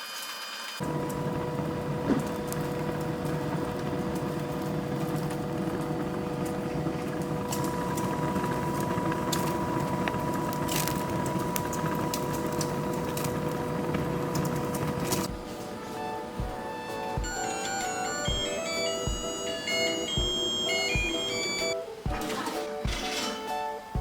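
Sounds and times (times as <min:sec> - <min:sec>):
machine hum with whine: 0:00.8 - 0:21.8
sharp crackles: 0:07.5 - 0:15.3.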